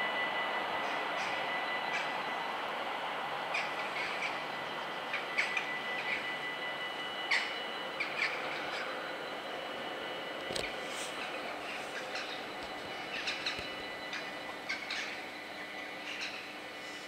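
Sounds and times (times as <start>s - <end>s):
steady background noise: 0.0s - 17.0s
small birds chirping: 11.2s - 17.0s.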